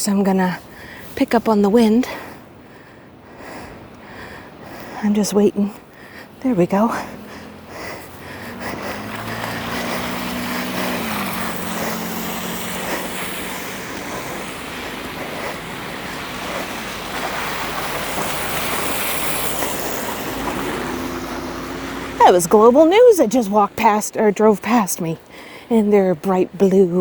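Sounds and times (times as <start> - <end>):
minivan engine hum: 1.8 - 24.0
tyres hissing on street: 2.1 - 23.2.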